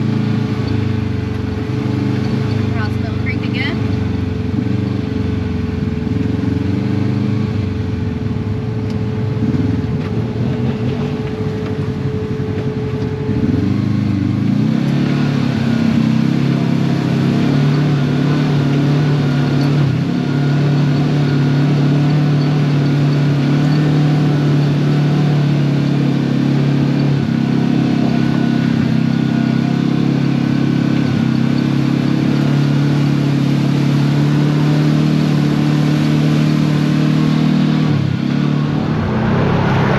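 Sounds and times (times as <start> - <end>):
utility vehicle engine: 0.0 - 39.9
thin steady whine: 37.9 - 39.9.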